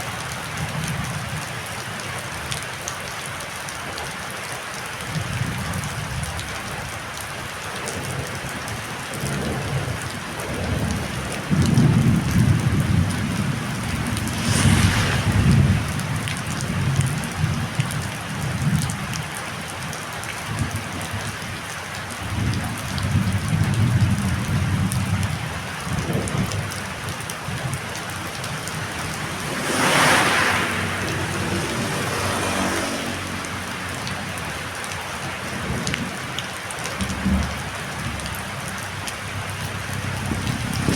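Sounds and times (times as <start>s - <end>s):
heavy rain falling: 0.0s - 40.9s
deep rumbles: 13.3s - 17.2s
loud whooshes: 13.7s - 17.1s.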